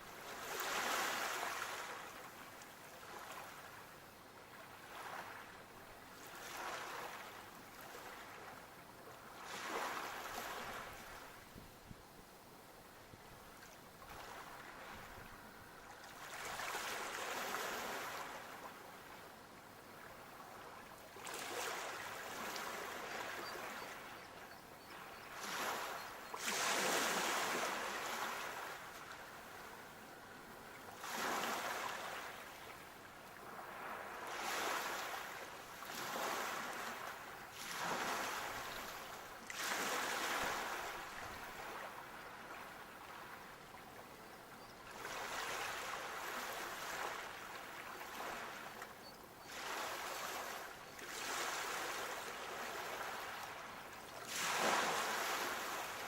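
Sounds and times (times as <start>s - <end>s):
sea waves breaking: 0.3s - 2.2s, 25.0s - 29.8s, 30.9s - 32.8s, 33.4s - 43.3s, 49.5s - 56.0s.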